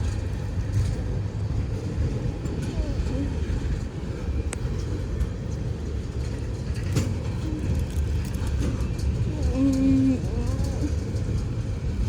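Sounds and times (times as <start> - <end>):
train wheels rumbling on rail: 0.0 - 12.0
sharp clicks of rail: 4.5 - 11.6.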